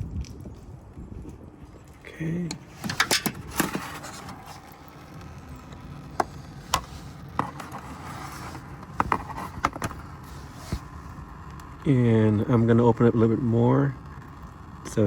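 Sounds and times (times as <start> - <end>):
coolant draining: 1.8 - 11.2.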